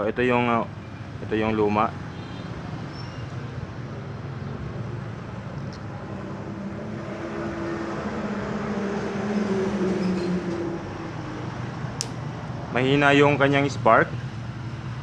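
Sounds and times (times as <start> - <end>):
vehicle engine droning: 4.2 - 15.0.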